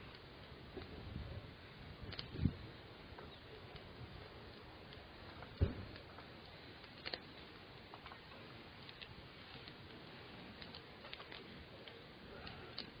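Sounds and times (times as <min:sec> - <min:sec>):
campfire crackling: 0:00.0 - 0:13.0
low hiss: 0:00.0 - 0:13.0
wood pops and ticks: 0:02.0 - 0:02.5, 0:03.2 - 0:10.0, 0:10.6 - 0:13.0.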